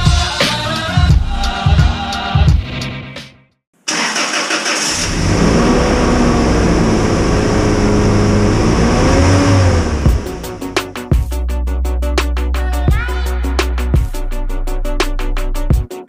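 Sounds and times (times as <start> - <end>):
rhythmic music: 0.0 - 2.8, 9.2 - 16.0
loud engine running: 4.6 - 11.0.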